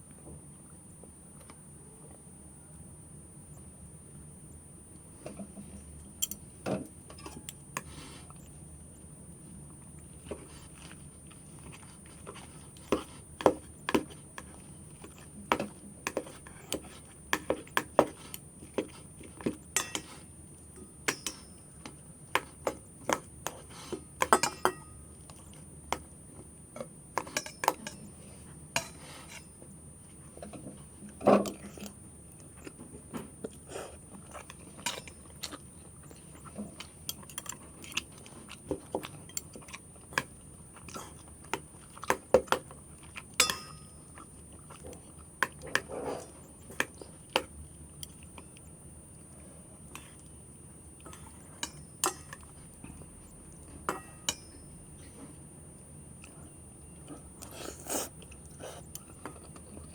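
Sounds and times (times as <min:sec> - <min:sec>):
utensils clinking against bowl: 0:06.2 - 0:06.4, 0:07.1 - 0:07.9, 0:18.8 - 0:20.2, 0:21.0 - 0:22.0, 0:24.2 - 0:25.4, 0:27.2 - 0:28.2, 0:28.8 - 0:29.5, 0:34.4 - 0:36.5, 0:42.5 - 0:44.8, 0:51.0 - 0:52.6, 0:53.9 - 0:54.8
chewing: 0:09.8 - 0:20.3, 0:30.2 - 0:50.4, 0:56.2 - 0:59.9.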